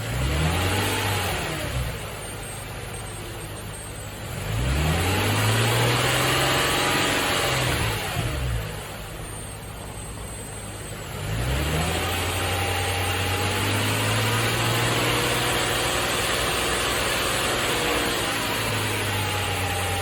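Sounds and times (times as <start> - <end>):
car engine revving: 0.0 - 2.3, 4.2 - 9.1, 11.0 - 20.0.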